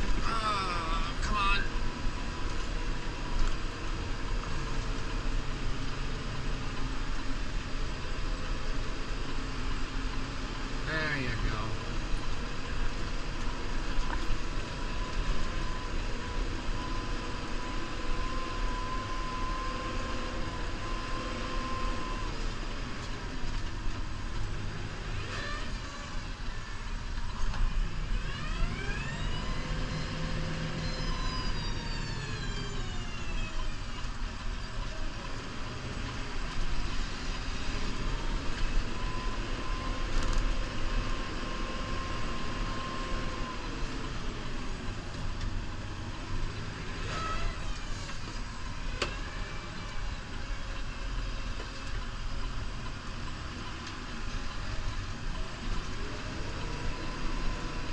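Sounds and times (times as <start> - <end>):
engine whine: 0.0 - 57.9
tractor diesel engine under load: 0.0 - 57.9.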